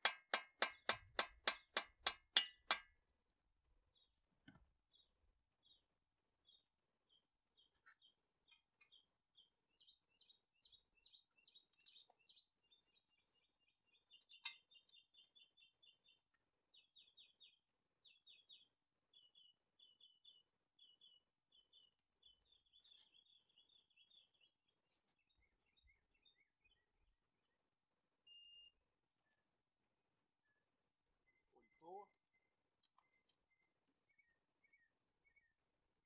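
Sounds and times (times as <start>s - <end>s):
faint bird song: 3.6s - 36.0s
sharp metallic click: 11.7s - 12.1s.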